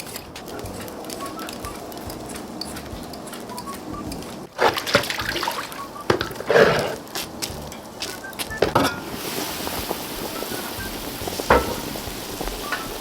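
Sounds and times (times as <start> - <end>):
water sloshing and splashing: 4.5 - 7.0.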